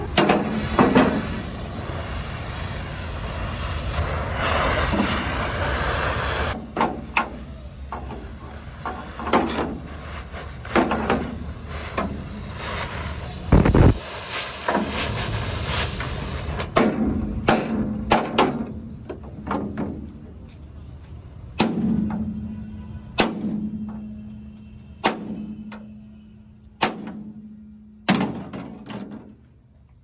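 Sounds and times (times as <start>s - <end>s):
machine running steadily: 6.5s - 16.9s
air hiss: 12.6s - 16.6s.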